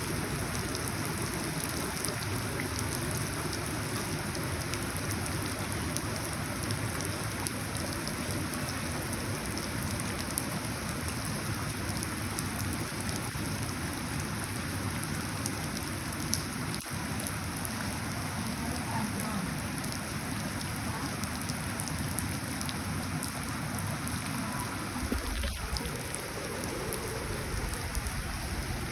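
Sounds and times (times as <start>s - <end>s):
rain falling into puddles: 0.0s - 28.9s
low rumble: 24.5s - 28.9s.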